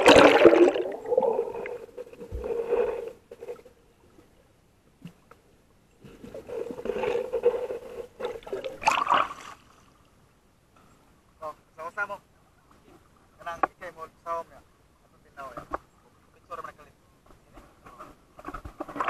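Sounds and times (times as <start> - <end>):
water gurgling underwater: 0.0 - 3.1
rush of water: 0.0 - 3.6, 8.2 - 9.9.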